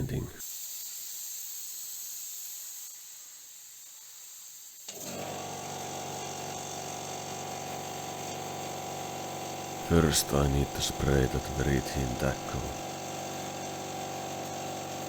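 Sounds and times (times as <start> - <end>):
paint spray gun hissing: 0.5 - 4.9.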